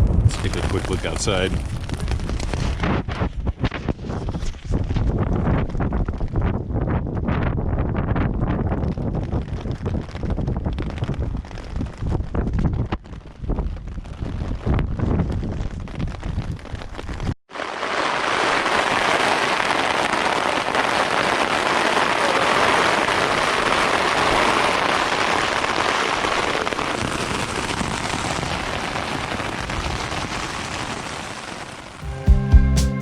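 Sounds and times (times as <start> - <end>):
wind buffeting microphone: 0.0 - 17.4
heavy rain falling: 17.5 - 25.7.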